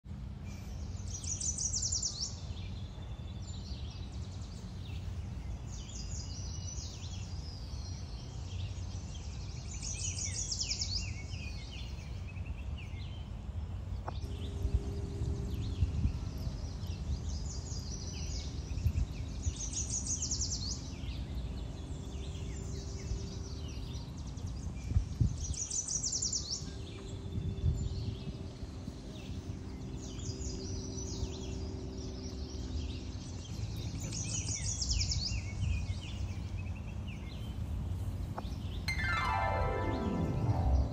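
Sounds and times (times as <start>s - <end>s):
faint steady hum: 0.1s - 20.5s
low outdoor rumble: 2.1s - 25.4s
birds calling: 28.0s - 40.9s.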